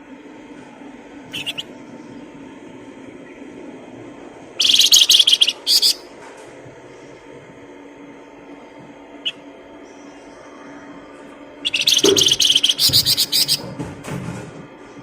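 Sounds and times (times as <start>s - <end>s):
steady low hum: 0.0s - 15.0s
songbird chirping and trilling: 1.3s - 2.4s, 4.6s - 6.1s, 9.2s - 13.7s.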